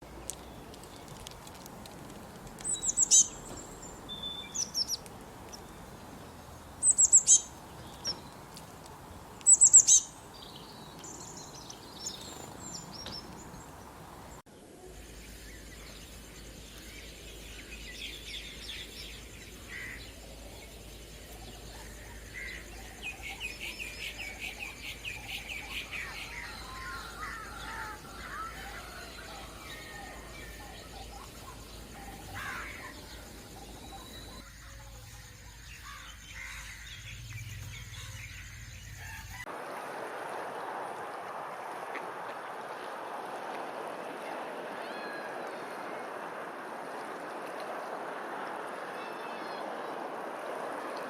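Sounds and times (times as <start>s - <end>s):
birds calling: 0.0s - 14.4s, 17.2s - 34.5s.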